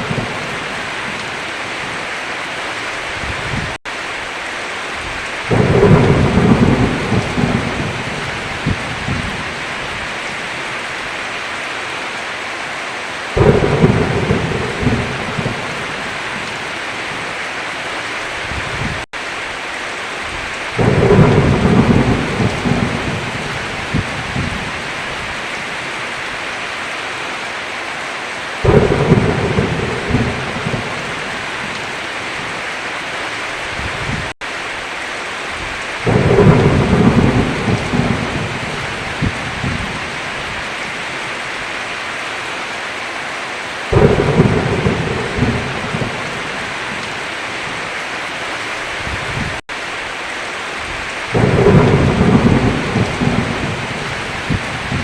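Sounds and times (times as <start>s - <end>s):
heavy rain: 0.0s - 55.0s
rolling thunder: 5.5s - 9.7s, 13.4s - 16.6s, 20.3s - 25.0s, 28.6s - 32.0s, 35.6s - 40.6s, 43.9s - 47.1s, 51.3s - 55.0s.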